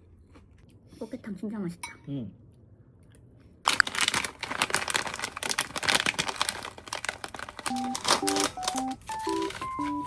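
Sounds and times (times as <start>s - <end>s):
plastic packaging crinkling: 3.7s - 10.0s.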